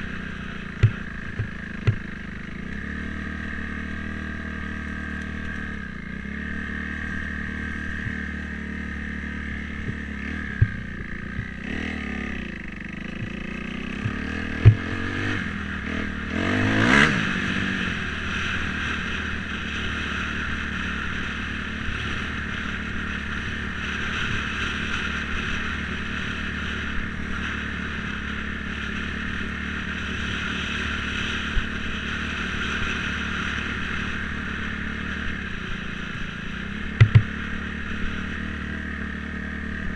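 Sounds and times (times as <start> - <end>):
dirt bike engine running: 0.0 - 39.9
sharp knocks: 0.8 - 2.1, 37.0 - 37.3.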